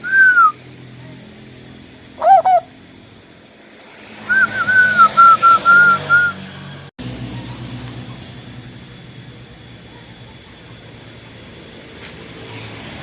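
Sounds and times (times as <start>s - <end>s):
bird calling with whistled notes: 0.0s - 6.6s.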